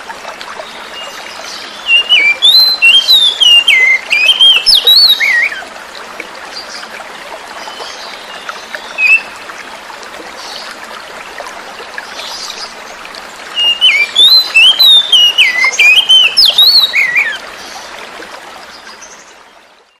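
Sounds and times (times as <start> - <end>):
trickle of running water: 0.0 - 20.0
bird singing whistled notes: 1.8 - 5.6, 8.9 - 9.4, 13.6 - 17.4.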